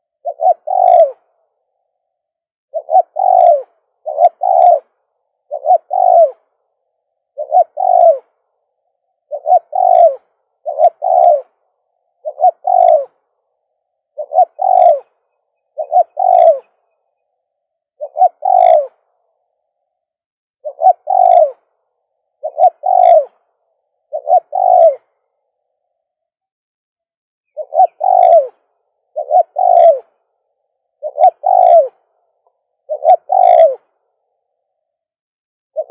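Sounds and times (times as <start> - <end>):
dove cooing: 0.0 - 1.6, 2.7 - 17.3, 18.0 - 19.6, 20.6 - 25.8, 27.5 - 34.5.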